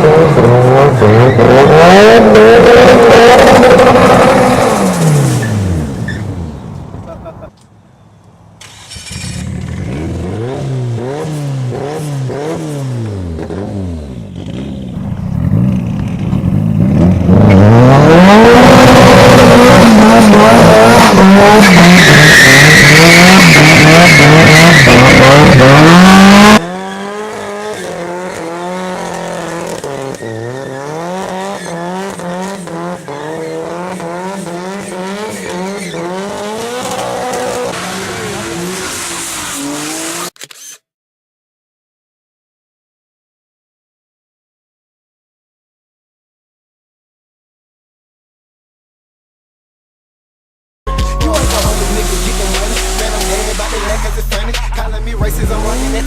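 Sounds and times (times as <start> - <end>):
car engine revving: 0.0 - 6.7, 8.6 - 40.4, 51.3 - 56.0
tires squealing: 0.0 - 6.8, 17.3 - 40.4, 51.2 - 56.0.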